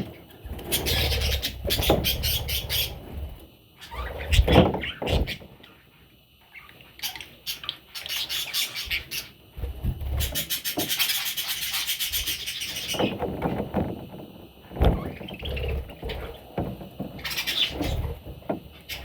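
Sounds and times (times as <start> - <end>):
baby budgerigars chirping: 0.0 - 3.0, 3.8 - 9.4, 10.0 - 13.2, 17.2 - 19.0.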